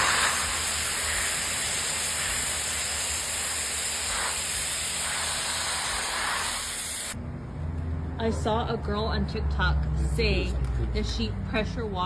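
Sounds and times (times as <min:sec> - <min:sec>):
pressure washer spraying water: 0:00.0 - 0:07.2.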